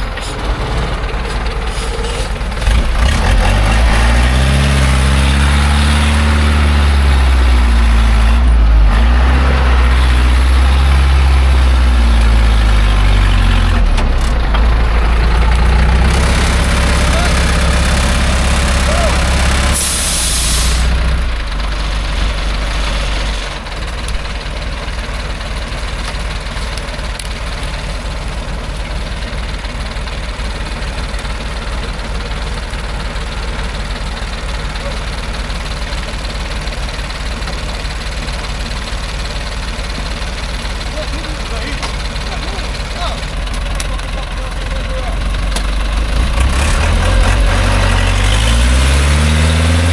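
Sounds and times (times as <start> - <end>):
truck engine labouring: 0.0 - 49.9
short loud hiss: 19.6 - 21.0.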